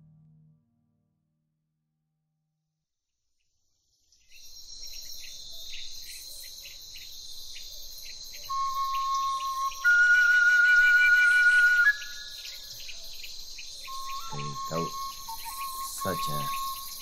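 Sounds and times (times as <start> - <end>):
insect chorus buzzing and chirping: 3.8 - 17.0.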